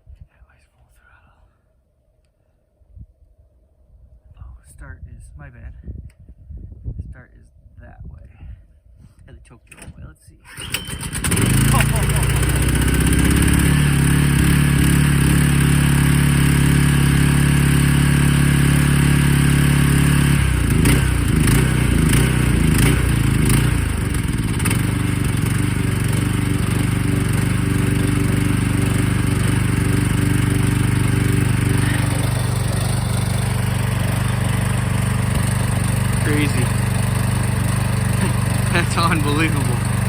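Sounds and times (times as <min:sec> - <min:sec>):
snowblower engine running: 0:10.5 - 0:40.0.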